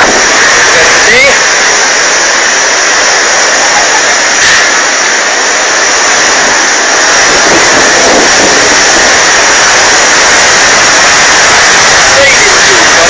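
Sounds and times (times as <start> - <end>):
strong wind blowing: 0.0 - 13.0.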